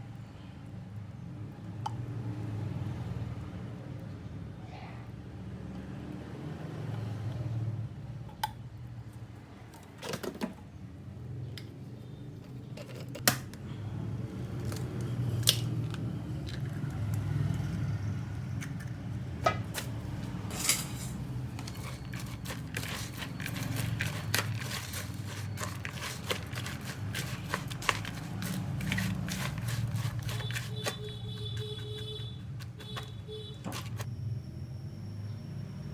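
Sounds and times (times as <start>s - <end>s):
kitchen clicks and scrapes: 12.3s - 13.6s, 18.6s - 34.1s
small crackles: 21.5s - 34.1s.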